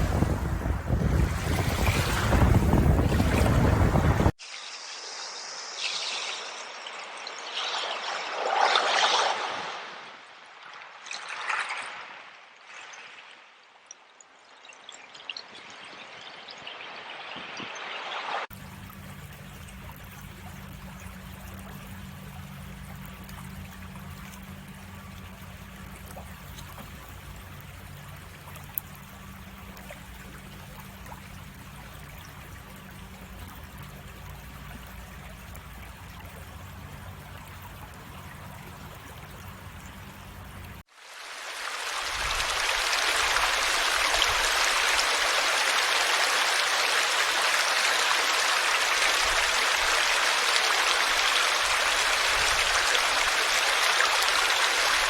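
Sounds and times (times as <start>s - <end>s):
loud rushing water: 0.0s - 7.5s, 40.8s - 55.0s
stream trickling: 0.0s - 55.0s.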